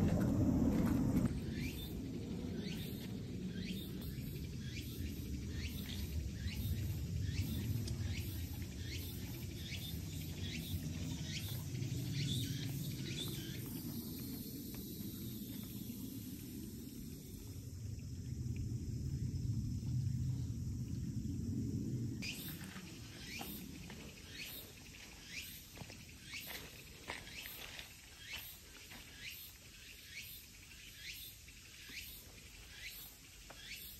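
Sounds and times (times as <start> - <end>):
low steady rumble: 0.0 - 22.3.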